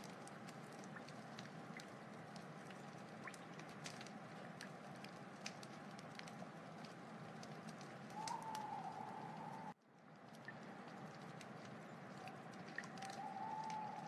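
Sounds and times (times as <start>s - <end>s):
wood fire crackling: 0.0s - 14.0s
thin whistling tone: 8.1s - 9.8s, 12.8s - 14.0s.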